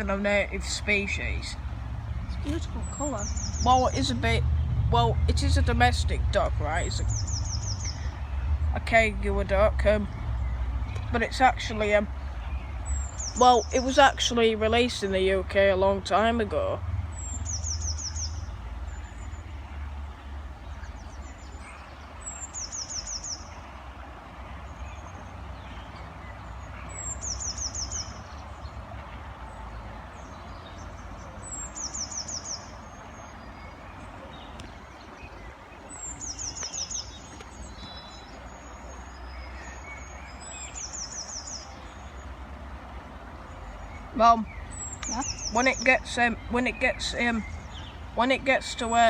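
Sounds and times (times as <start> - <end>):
songbird trilling: 0.0 - 15.4, 16.1 - 19.7, 20.6 - 23.9, 24.6 - 28.7, 30.2 - 42.3, 43.5 - 49.0.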